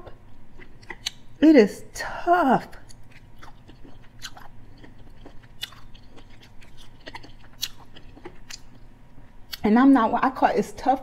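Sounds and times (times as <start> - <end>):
person chewing food: 0.0 - 1.4, 2.7 - 9.6.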